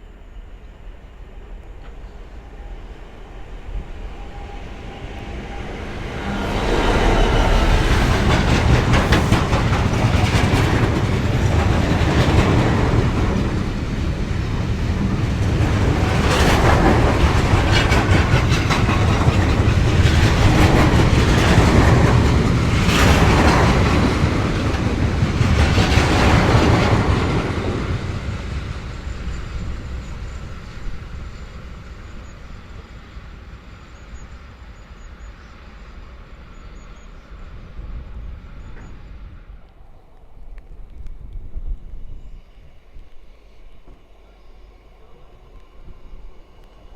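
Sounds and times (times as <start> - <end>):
train wheels clattering on rails: 1.2 - 37.3.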